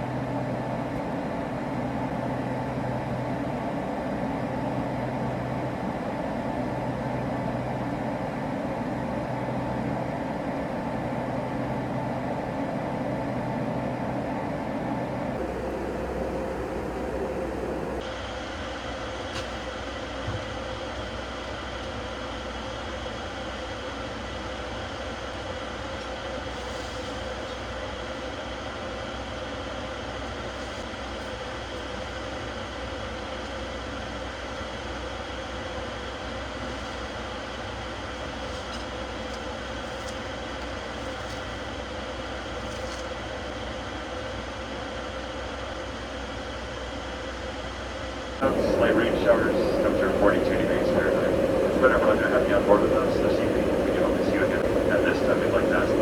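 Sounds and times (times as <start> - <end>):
faint constant hum: 0.0 - 18.0, 48.4 - 56.0
jet cabin rushing drone: 0.0 - 18.1, 48.4 - 56.0
thin high whine: 48.4 - 56.0.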